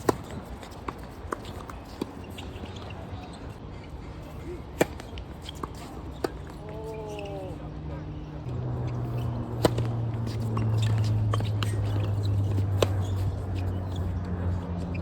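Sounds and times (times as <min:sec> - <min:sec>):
tennis ball bouncing: 0:00.0 - 0:02.9, 0:04.8 - 0:06.6, 0:08.9 - 0:15.0
racket striking tennis ball: 0:09.0 - 0:13.8.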